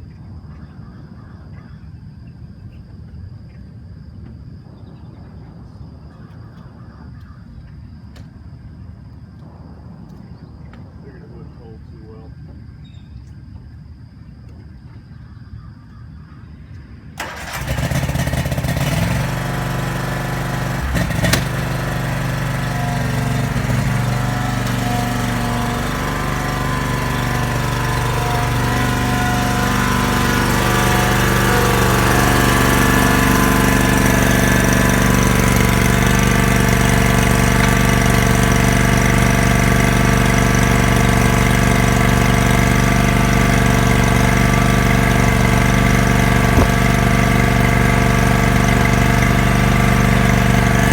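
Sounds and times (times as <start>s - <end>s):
mower engine starting and running: 17.2s - 50.9s.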